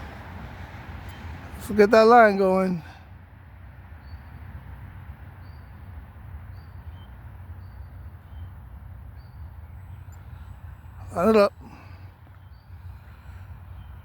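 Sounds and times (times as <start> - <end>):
bird chirping: 4.0 - 4.5, 5.3 - 14.0.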